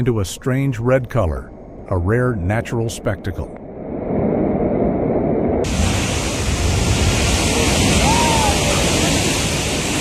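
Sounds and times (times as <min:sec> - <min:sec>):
wind on microphone: 0:03.2 - 0:10.0
surf rushing: 0:03.3 - 0:10.0.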